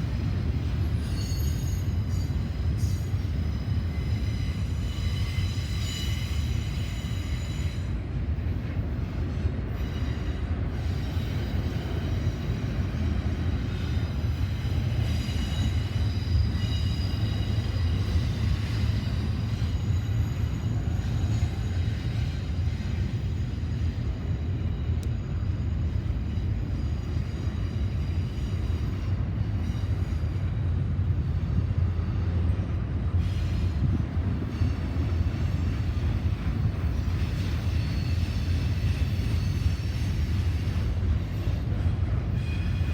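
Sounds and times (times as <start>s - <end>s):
freight train rumbling: 0.0s - 42.9s
high-pitched wheel squeal: 0.9s - 8.0s, 34.5s - 42.9s.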